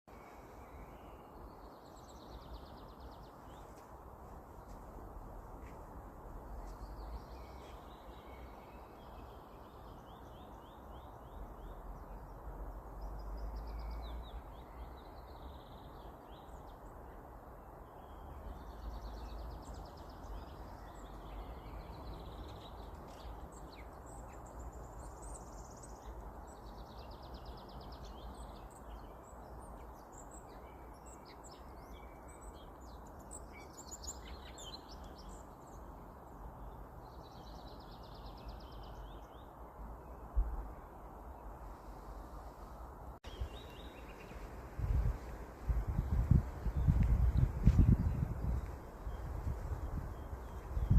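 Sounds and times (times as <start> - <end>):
songbirds singing and calling: 5.6 - 17.2, 17.8 - 50.9
background hiss: 39.9 - 50.9.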